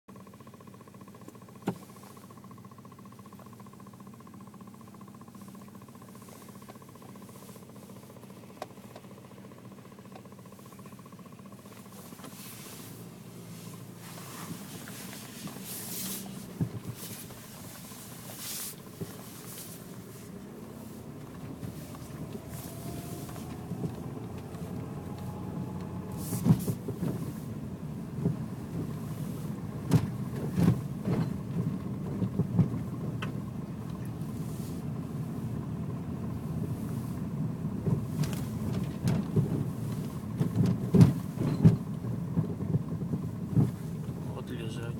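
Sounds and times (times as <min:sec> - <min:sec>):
car engine and road rumble: 0:00.1 - 0:44.9
car knocking over bumps: 0:13.8 - 0:34.4, 0:37.3 - 0:44.4.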